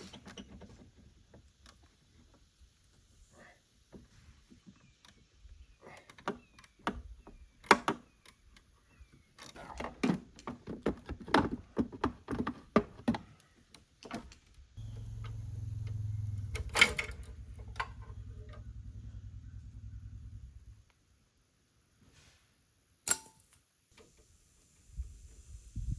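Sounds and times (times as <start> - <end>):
low pulsing mechanical hum: 14.8 - 20.9
metallic clicks of hand tools: 23.0 - 23.6.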